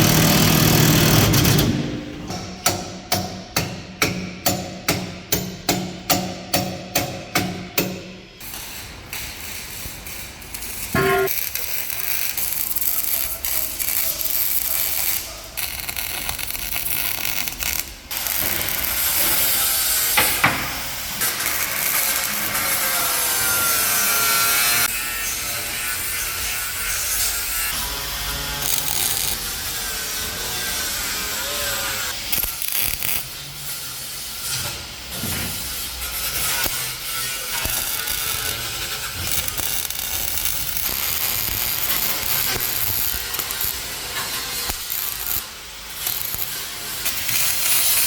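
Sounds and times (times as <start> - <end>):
rasping tool scraping: 0.0 - 2.0
ringing hammer blows: 11.0 - 11.4.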